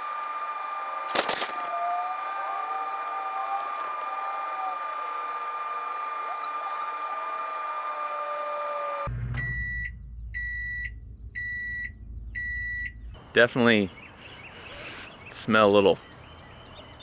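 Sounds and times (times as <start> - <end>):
high-pitched hum: 0.0 - 14.9
microwave oven beeps: 9.4 - 13.0.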